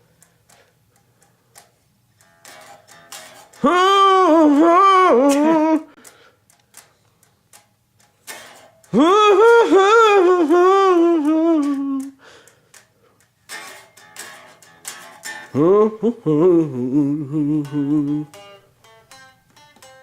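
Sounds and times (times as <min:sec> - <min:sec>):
quiet plucked sounds: 0:01.5 - 0:12.1, 0:13.4 - 0:20.0
sliding blues guitar notes: 0:02.2 - 0:06.3, 0:08.0 - 0:12.5, 0:13.4 - 0:20.0.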